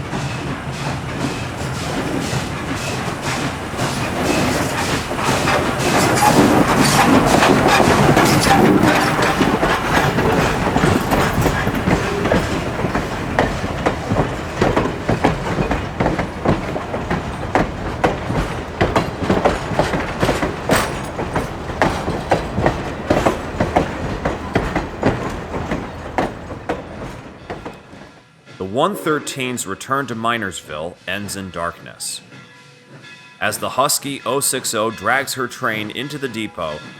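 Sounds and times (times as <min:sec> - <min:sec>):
train wheels clacking on rails: 0:00.0 - 0:28.2
steam train passing: 0:00.0 - 0:36.9.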